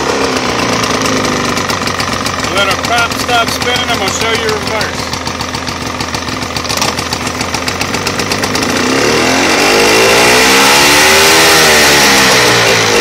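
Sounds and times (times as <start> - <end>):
outboard motor idling: 0.0 - 10.2.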